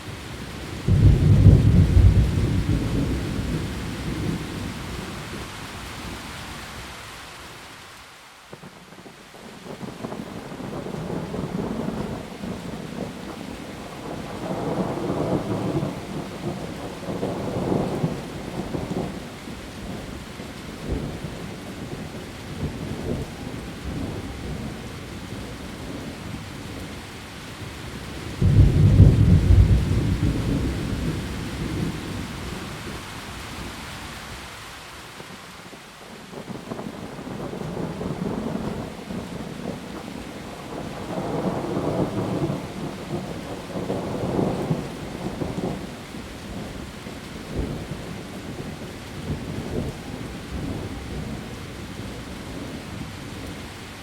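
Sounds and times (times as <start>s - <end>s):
heavy rain on leaves: 0.0s - 54.0s
thunder rumbling: 0.8s - 6.2s, 28.3s - 33.8s, 36.4s - 46.7s
loud thunder crack: 0.9s - 4.4s, 28.4s - 32.0s.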